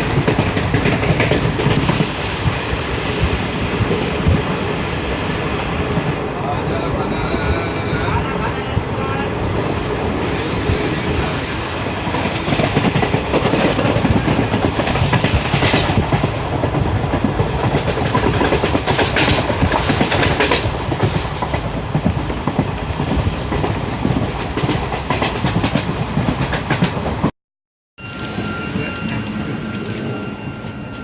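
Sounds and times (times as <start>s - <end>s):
train wheels clattering on rails: 0.0s - 4.7s, 9.7s - 27.3s.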